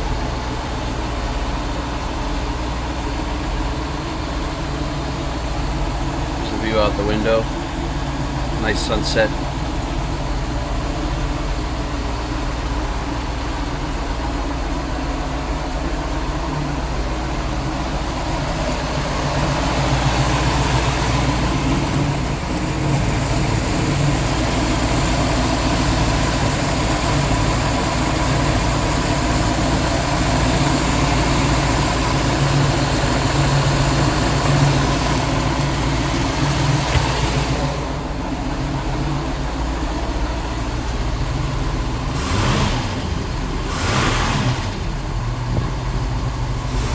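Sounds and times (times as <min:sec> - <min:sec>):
boat engines idling: 0:00.0 - 0:46.9.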